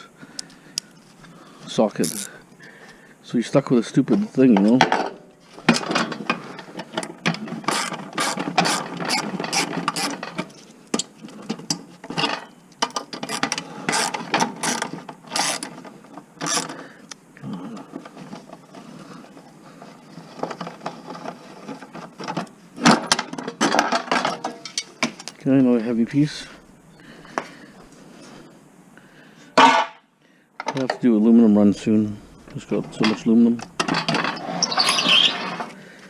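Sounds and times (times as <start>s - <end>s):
ratchet pawl clicking: 13.3s - 15.7s
metal parts knocking and clinking: 21.2s - 25.4s, 32.8s - 35.7s.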